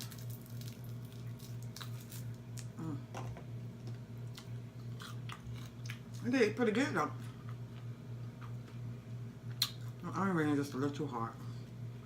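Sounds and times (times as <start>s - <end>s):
chewing and wet mouth sounds: 0.0s - 2.8s, 3.8s - 6.3s, 7.2s - 8.8s, 9.4s - 10.0s
low electrical hum: 0.0s - 12.0s.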